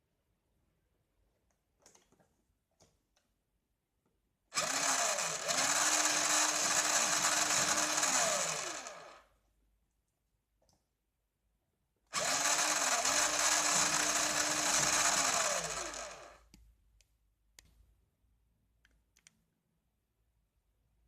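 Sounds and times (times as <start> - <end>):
toy truck motor whirring: 4.6 - 9.3, 12.2 - 16.4.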